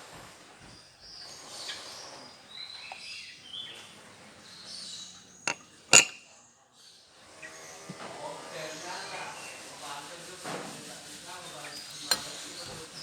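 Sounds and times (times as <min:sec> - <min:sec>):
metal tool clinking on metal: 0:11.7 - 0:13.0.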